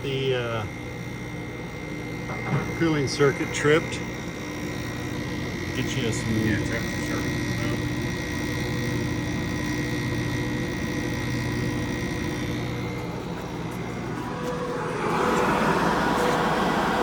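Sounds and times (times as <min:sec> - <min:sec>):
air conditioner humming: 0:00.0 - 0:17.0
rush of air: 0:14.1 - 0:17.0.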